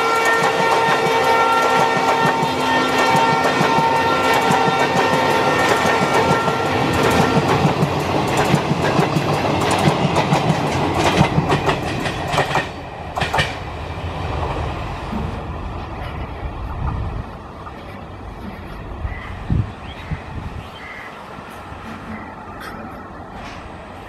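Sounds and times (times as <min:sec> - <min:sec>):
train wheels clattering over rail joints: 0:00.0 - 0:13.7.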